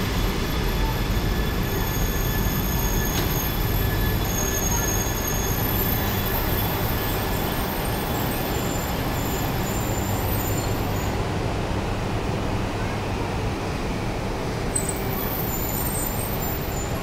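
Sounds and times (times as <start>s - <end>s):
train rumbling slowly: 0.0s - 17.0s
faint high-pitched squealing: 0.1s - 11.2s, 14.8s - 17.0s.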